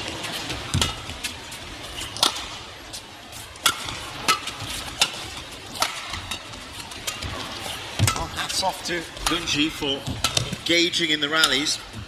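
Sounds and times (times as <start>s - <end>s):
rackets striking shuttlecock: 2.1s - 2.6s, 3.6s - 7.4s, 8.0s - 8.5s, 9.2s - 10.7s, 11.4s - 11.7s.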